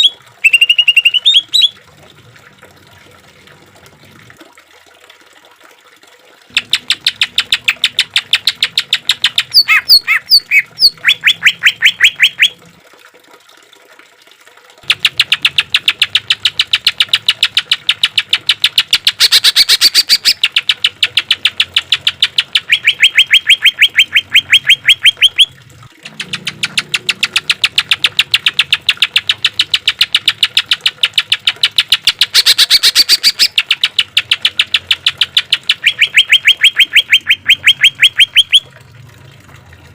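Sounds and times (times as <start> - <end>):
bird singing rapid chatter: 0.0 - 1.7, 6.5 - 12.5, 14.9 - 25.5, 26.1 - 38.6.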